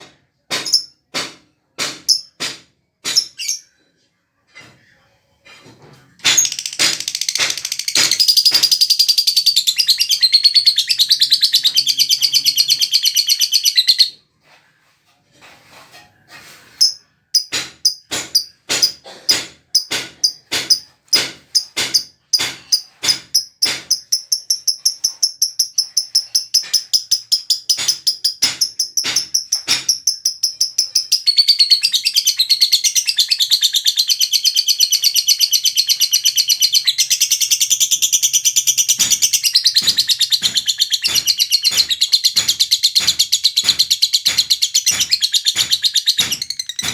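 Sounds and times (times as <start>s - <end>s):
lovebird chattering song: 6.3s - 14.1s, 21.6s - 46.9s.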